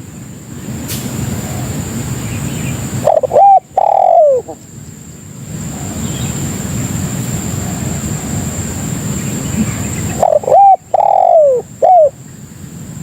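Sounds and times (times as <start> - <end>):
dove cooing: 1.3 - 2.1, 2.8 - 4.6, 7.4 - 12.2.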